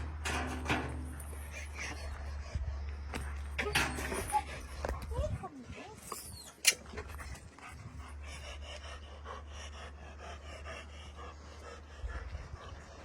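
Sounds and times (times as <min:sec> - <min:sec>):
dog panting quickly: 0:01.3 - 0:03.5, 0:06.9 - 0:13.0.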